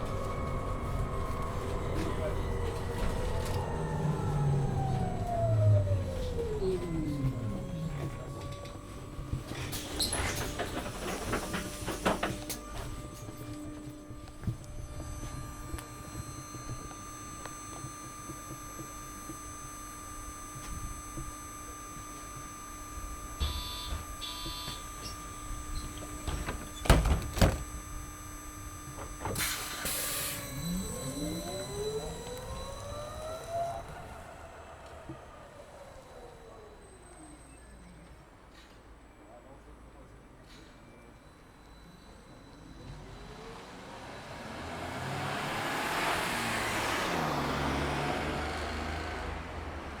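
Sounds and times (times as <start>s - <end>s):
bus idling hum: 0.0s - 50.0s
short beeps: 23.4s - 25.1s, 29.6s - 32.9s.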